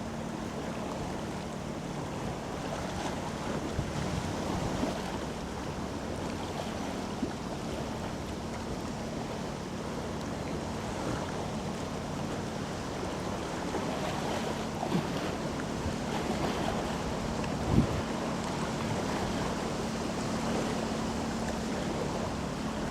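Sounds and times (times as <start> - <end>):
ship engine drone: 0.0 - 22.9
wind buffeting microphone: 3.6 - 5.0, 15.8 - 20.5.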